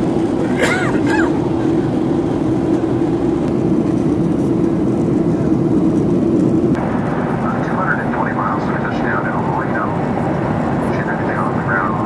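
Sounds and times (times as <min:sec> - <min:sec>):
jet engine cabin roar: 0:00.0 - 0:12.0.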